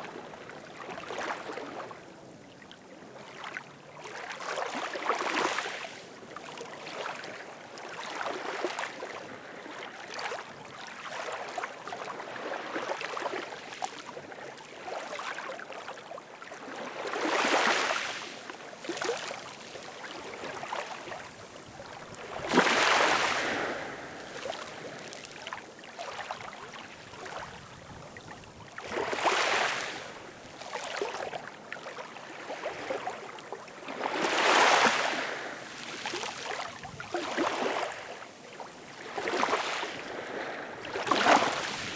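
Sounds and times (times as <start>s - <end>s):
ocean waves washing on shore: 16.5s - 41.9s
waves surging and breaking: 16.8s - 27.7s, 28.8s - 31.2s, 32.0s - 38.2s, 38.9s - 41.9s.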